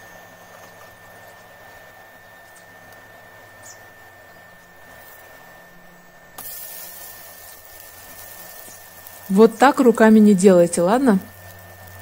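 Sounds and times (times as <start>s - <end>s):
batter sizzling in a pan: 6.4s - 12.0s.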